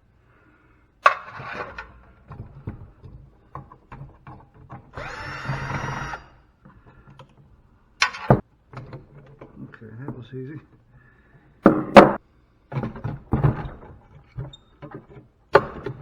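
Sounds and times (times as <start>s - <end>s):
power drill-driver running: 5.0s - 6.4s.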